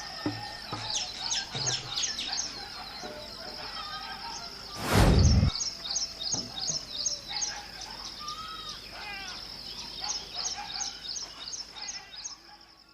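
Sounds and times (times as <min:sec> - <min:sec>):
birds chirping and calling: 0:00.0 - 0:12.6.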